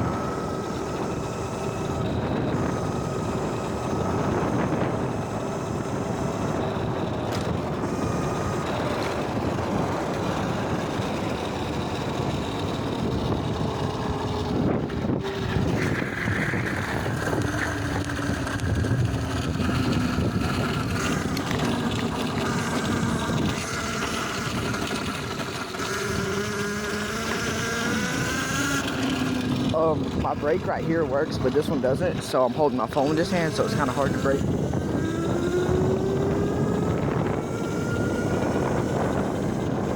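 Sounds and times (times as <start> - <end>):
faint motor whine: 0.0 - 39.9
wind and road noise: 0.0 - 39.9.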